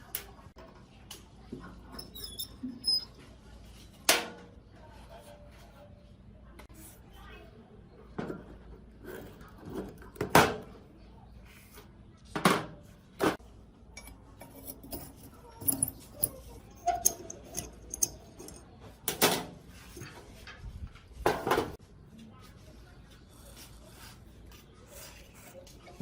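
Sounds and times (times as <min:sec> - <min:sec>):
metal tools clinking: 0:13.9 - 0:18.6.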